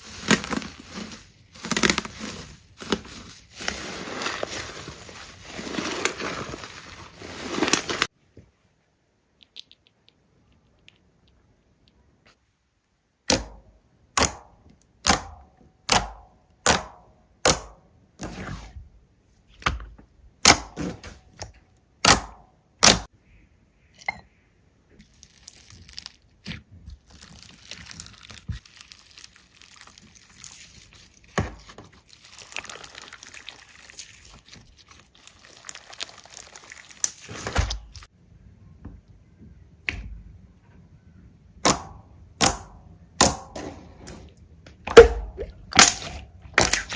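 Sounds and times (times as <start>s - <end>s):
slime crackling and popping: 25.0s - 31.4s, 32.0s - 38.1s, 44.9s - 46.9s
slime squishing and slapping: 25.0s - 38.1s, 44.9s - 46.9s.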